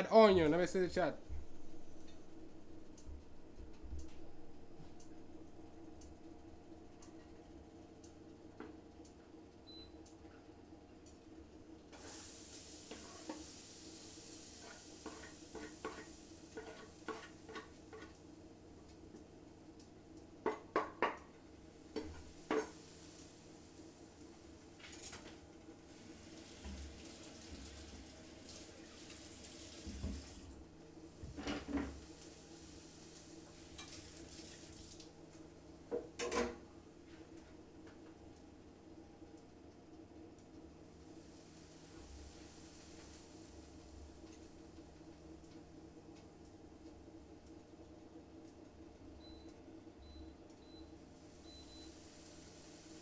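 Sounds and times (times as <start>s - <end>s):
faint steady hum: 0.0s - 53.0s
onion sizzling in oil: 12.0s - 18.3s, 21.7s - 24.9s, 25.9s - 30.5s, 31.1s - 35.1s, 41.0s - 44.7s, 51.2s - 53.0s.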